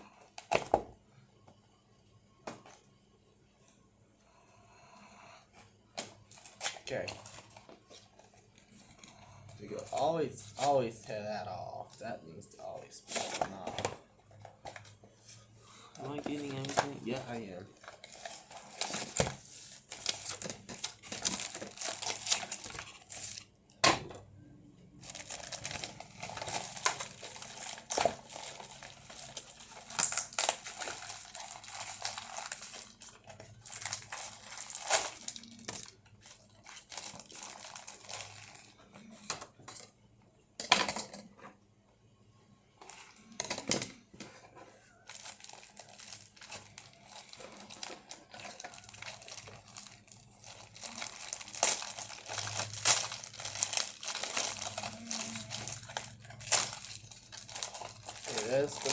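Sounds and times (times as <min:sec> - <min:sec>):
packaging crinkling and rustling: 0:06.0 - 0:23.5, 0:25.0 - 0:39.8, 0:44.9 - 0:58.9.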